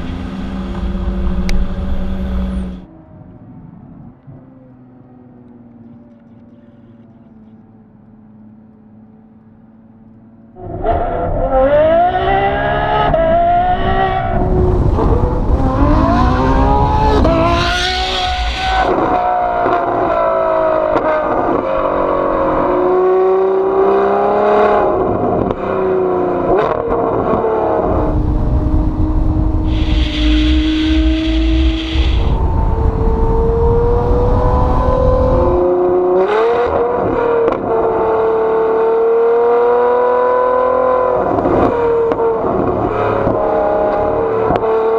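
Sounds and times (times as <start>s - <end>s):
sports car engine revving: 10.6s - 44.9s.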